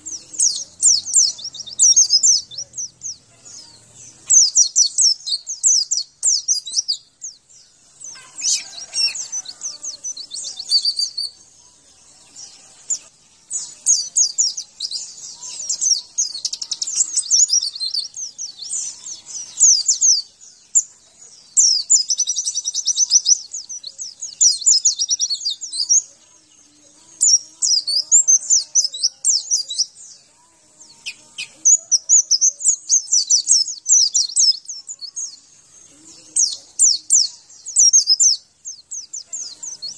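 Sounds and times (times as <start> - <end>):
bird singing chattering song: 0.0 - 39.9.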